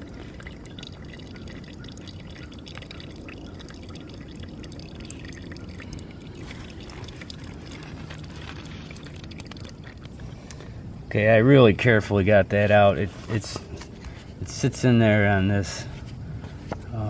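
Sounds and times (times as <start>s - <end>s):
oil dripping into a pan: 0.0s - 10.8s.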